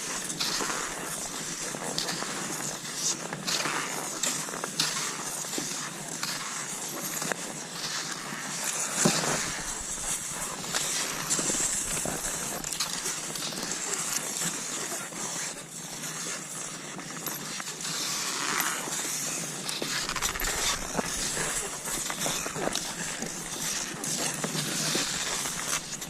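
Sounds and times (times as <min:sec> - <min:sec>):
skis swishing over snow: 0:00.0 - 0:26.0
sharp crunches and clicks: 0:09.2 - 0:13.8, 0:19.7 - 0:26.0.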